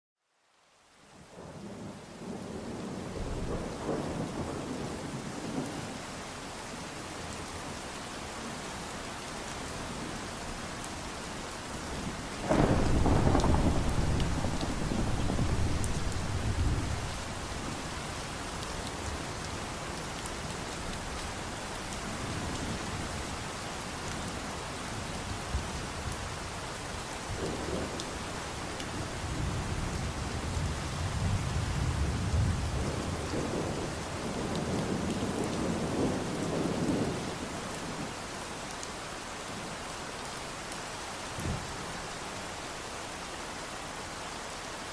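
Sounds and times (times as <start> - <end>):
steady rain falling: 0.2 - 44.9
thunder rumbling: 12.4 - 18.1.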